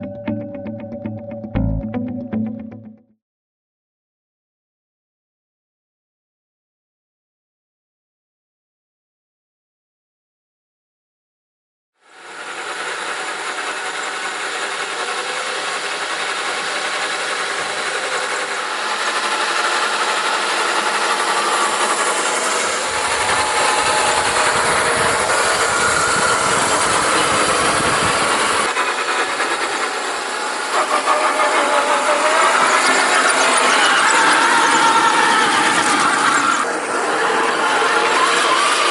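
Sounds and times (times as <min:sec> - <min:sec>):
electric motor whine: 0:12.0 - 0:38.9
wheels rolling: 0:12.5 - 0:38.9.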